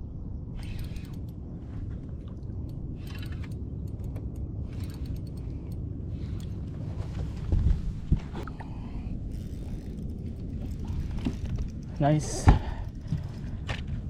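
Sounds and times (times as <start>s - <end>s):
steady low rumble: 0.0s - 14.0s
fishing reel clicking and whirring: 0.6s - 1.4s, 2.6s - 6.7s, 9.2s - 13.7s.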